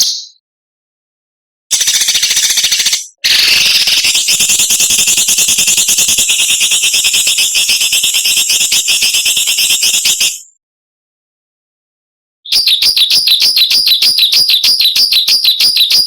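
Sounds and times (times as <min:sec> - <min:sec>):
songbird rasping buzzing call: 0:01.7 - 0:06.0.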